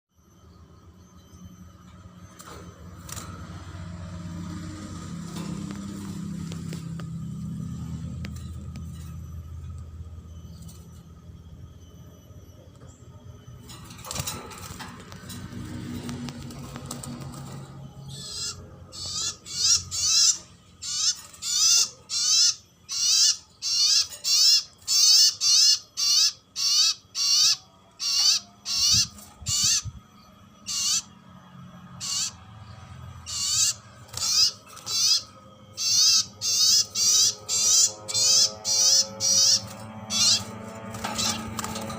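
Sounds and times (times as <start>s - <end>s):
bird warbling calls: 18.0s - 30.0s, 30.6s - 31.2s, 32.0s - 32.4s, 33.2s - 41.9s.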